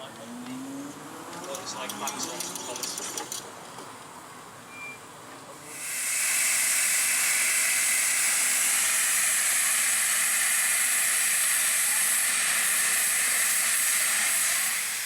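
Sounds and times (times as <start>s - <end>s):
steam locomotive hissing steam: 5.6s - 15.0s.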